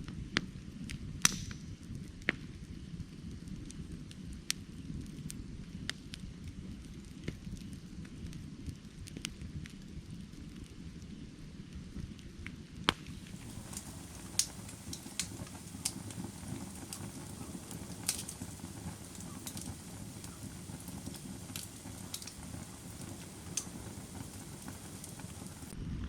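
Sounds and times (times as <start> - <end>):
firewood crackling and popping: 0.1 - 11.1, 11.9 - 25.8
low roar of flames: 12.9 - 25.8.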